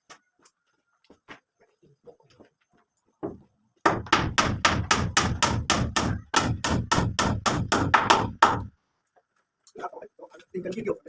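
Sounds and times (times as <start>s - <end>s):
hammer strikes: 3.2s - 8.7s.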